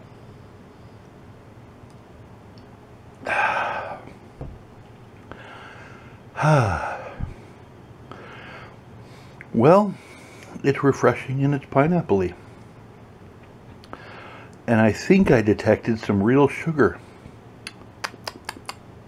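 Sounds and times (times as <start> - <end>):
man exhaling: 3.2 - 4.2, 5.3 - 7.5
soft low thumps: 4.4 - 4.8, 7.1 - 7.4
man saying ahh: 6.4 - 7.2.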